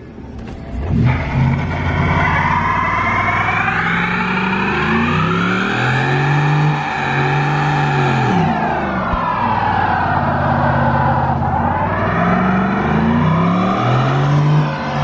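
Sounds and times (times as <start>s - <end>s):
tire squealing: 0.1s - 15.0s
truck engine revving: 0.2s - 15.0s.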